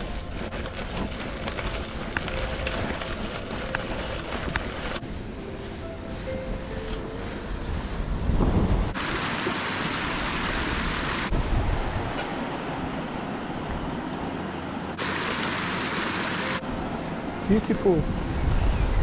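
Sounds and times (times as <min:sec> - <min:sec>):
wind buffeting microphone: 0:00.0 - 0:09.0, 0:10.7 - 0:13.0, 0:18.0 - 0:19.0.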